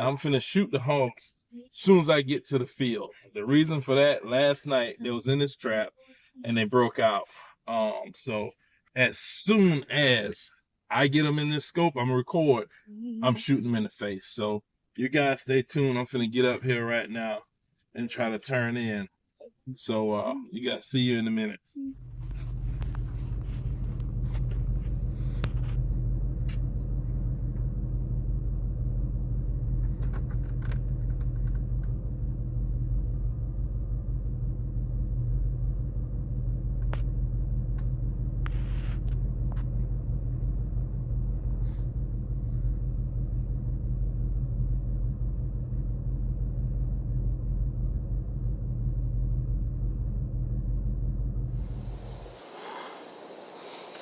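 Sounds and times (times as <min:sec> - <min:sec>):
vehicle rumble from inside cabin: 0:21.8 - 0:52.5
small clicks and rattles: 0:29.8 - 0:32.0
faint high whine: 0:51.5 - 0:54.0.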